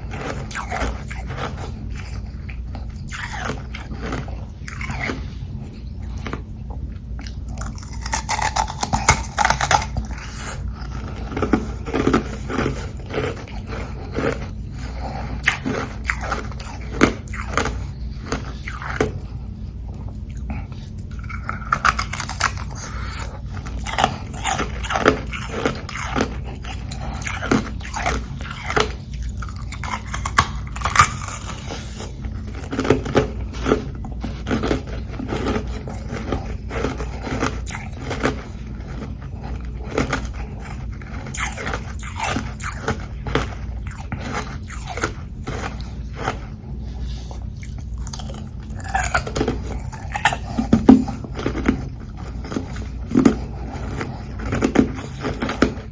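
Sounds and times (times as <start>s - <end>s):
crunching ice being chewed: 0.0s - 55.9s.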